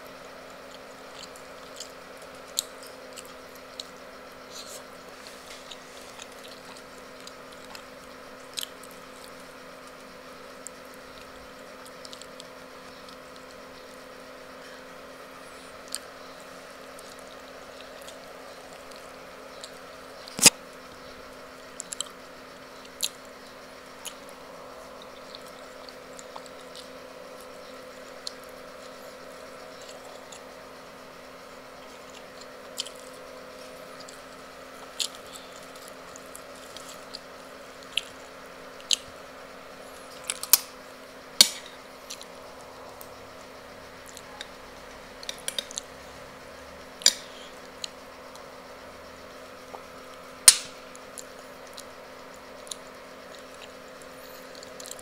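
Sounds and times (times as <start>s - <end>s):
chewing and mouth noises: 0.3s - 13.6s, 15.5s - 20.6s, 21.7s - 22.2s, 22.8s - 30.6s, 31.6s - 40.6s, 51.2s - 55.0s.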